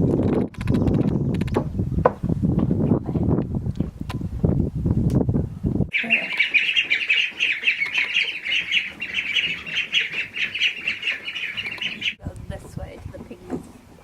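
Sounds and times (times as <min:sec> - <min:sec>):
many small birds chirping: 0:05.9 - 0:12.2.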